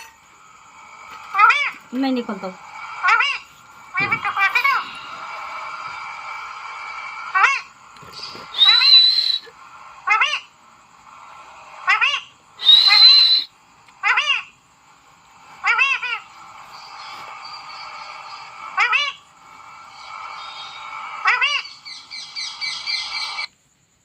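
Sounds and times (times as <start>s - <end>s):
parrot whistling: 0.0s - 0.2s, 1.0s - 1.8s, 2.7s - 10.5s, 11.7s - 14.5s, 15.6s - 23.5s
parrot screeching: 1.3s - 1.8s, 3.0s - 5.0s, 7.3s - 7.7s, 8.5s - 9.4s, 10.0s - 10.5s, 11.8s - 14.5s, 15.6s - 16.3s, 18.8s - 19.2s, 20.6s - 23.5s.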